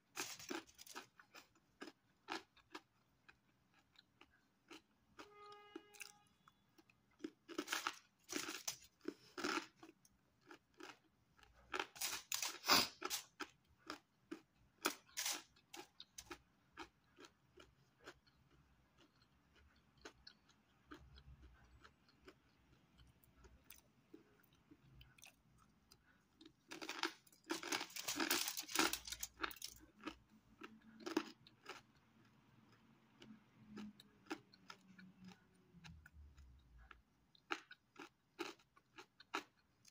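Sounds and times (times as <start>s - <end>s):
crunching crispy crust: 0.0s - 4.8s, 6.8s - 18.2s, 26.4s - 31.8s.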